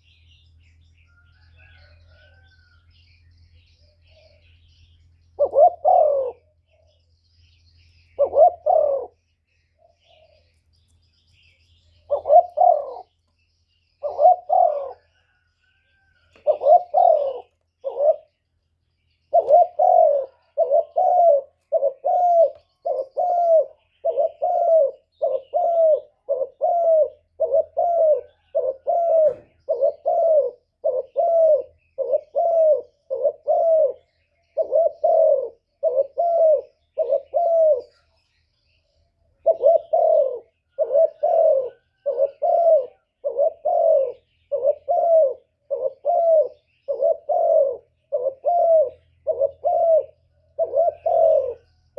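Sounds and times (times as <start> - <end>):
dove cooing: 0.0 - 10.6, 11.4 - 13.2, 13.8 - 18.5, 19.1 - 51.9.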